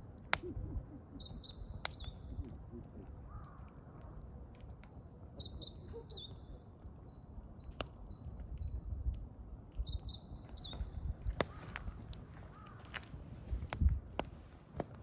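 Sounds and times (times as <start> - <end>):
songbird chirping: 0.0 - 11.6
wood fire crackling and popping: 0.0 - 15.0.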